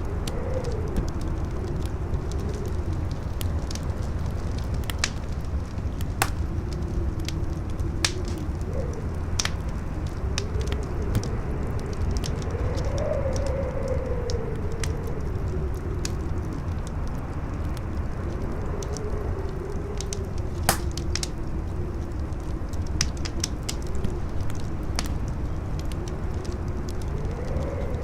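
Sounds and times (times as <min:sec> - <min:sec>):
campfire wood crackling: 0:00.0 - 0:28.0
wind howling: 0:00.0 - 0:28.0
loud fire pop: 0:06.2 - 0:06.4, 0:20.6 - 0:21.0.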